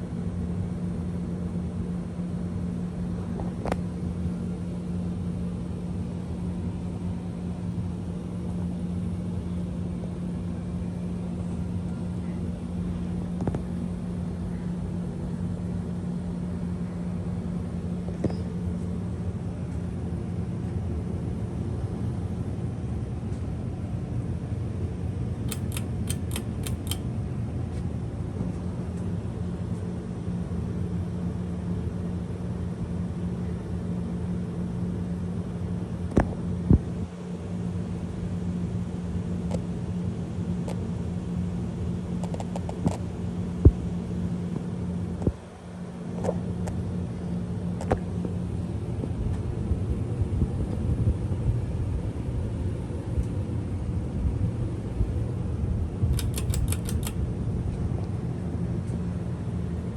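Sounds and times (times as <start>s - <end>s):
ceiling fan motor hum: 0.0s - 59.9s.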